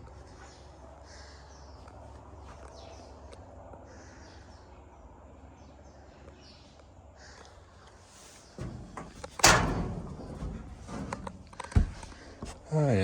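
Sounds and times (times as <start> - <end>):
loud metallic bang ringing: 8.6 - 11.5
sliding door rumbling on track: 8.6 - 12.3.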